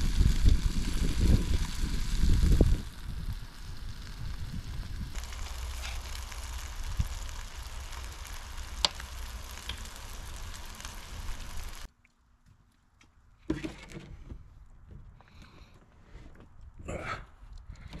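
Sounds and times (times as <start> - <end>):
batter sizzling on a griddle: 0.0 - 11.9.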